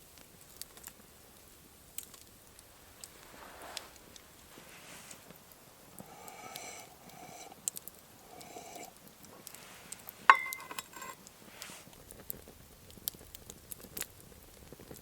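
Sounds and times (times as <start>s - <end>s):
campfire crackling: 0.0s - 15.0s
metallic clink: 10.3s - 11.2s.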